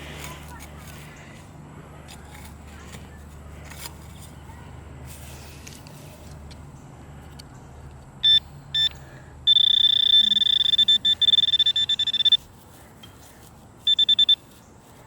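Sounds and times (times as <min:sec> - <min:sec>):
metal detector beeping: 0:08.2 - 0:12.5, 0:13.8 - 0:14.6.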